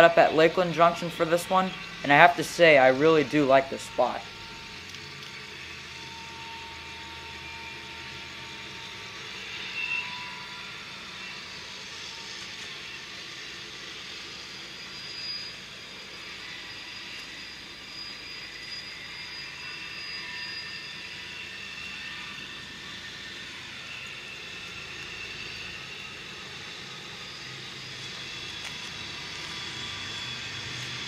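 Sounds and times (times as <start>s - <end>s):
thin high tones: 0.0s - 4.7s
freight train rolling past: 0.0s - 31.0s.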